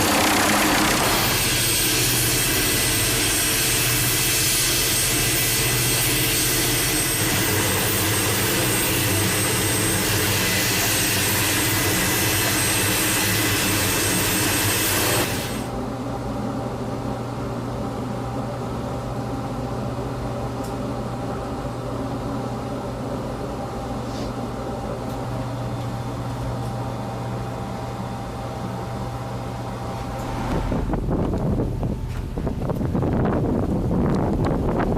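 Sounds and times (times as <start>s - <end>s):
jet engine roaring with whine: 0.0s - 15.8s, 29.5s - 34.9s
steady low hum: 0.0s - 34.9s.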